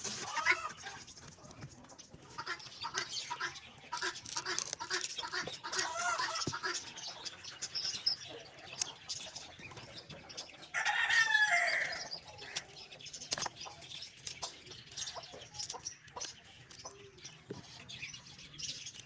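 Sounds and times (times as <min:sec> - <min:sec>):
rooster crowing: 0:10.7 - 0:12.0.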